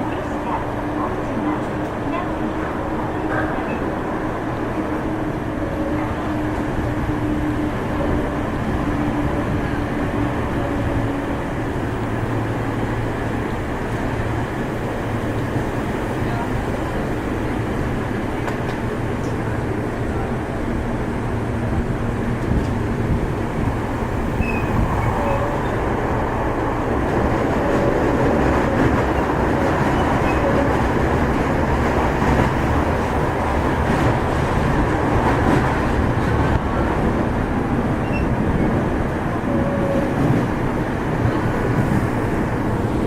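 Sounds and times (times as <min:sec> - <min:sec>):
subway car wheels rumbling on rail: 0:00.0 - 0:43.0
faint short squeaks: 0:38.0 - 0:38.3.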